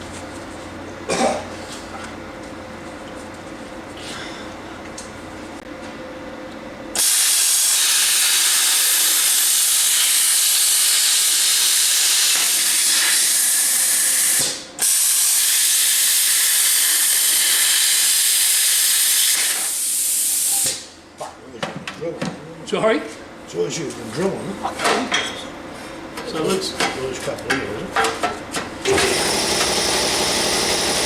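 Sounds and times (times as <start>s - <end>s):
compressed air tool hissing: 14.0s - 20.9s.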